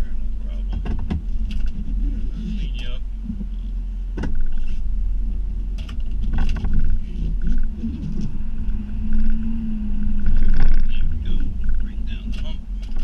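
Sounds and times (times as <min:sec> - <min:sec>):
snow plow truck rumbling: 0:00.0 - 0:13.0
truck knocks and clunks: 0:00.7 - 0:01.8, 0:04.1 - 0:04.6, 0:05.8 - 0:08.3.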